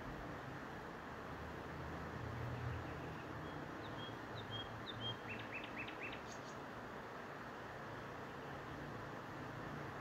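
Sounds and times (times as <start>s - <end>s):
outdoor background hiss: 0.0s - 10.0s
small bird chirping: 2.5s - 6.7s.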